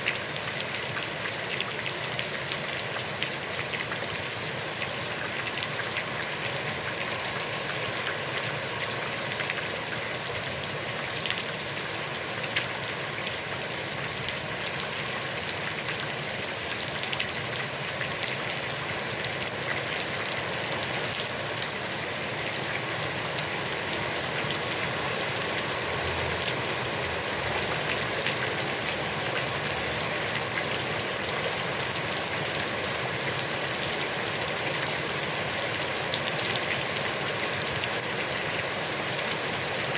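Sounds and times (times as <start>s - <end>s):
heavy rain on a pond: 0.0s - 39.9s.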